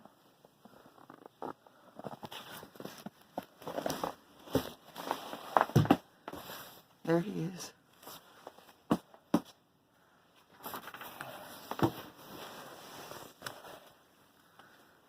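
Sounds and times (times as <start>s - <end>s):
rustling noise: 10.4s - 14.0s.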